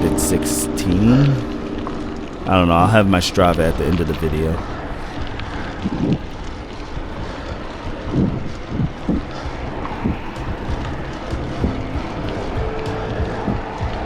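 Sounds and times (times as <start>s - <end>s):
wind rushing over microphone: 4.7s - 14.0s.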